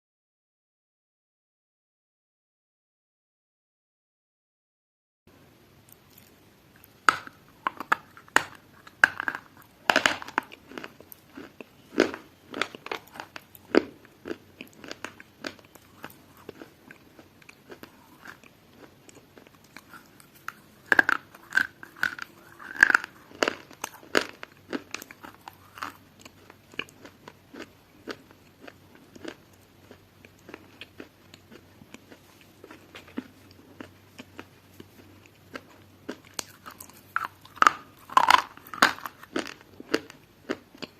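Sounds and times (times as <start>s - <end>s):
person chewing crunchy food: 5.9s - 40.9s.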